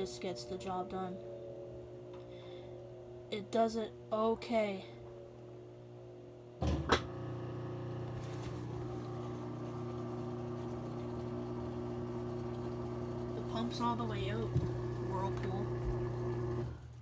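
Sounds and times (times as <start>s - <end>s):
washing machine motor hum: 5.1s - 17.0s
washing machine clunks: 6.6s - 7.2s.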